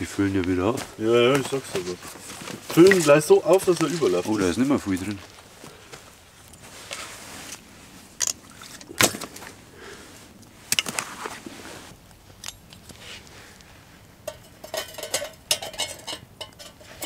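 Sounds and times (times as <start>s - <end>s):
metal cookware clinking: 14.2s - 17.0s.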